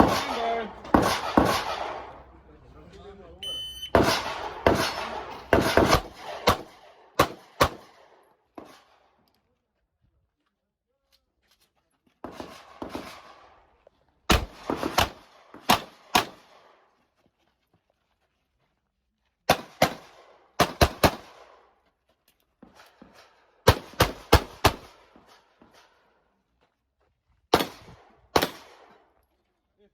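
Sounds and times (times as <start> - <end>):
gunshots with echo: 0.0 - 2.3, 3.9 - 7.9.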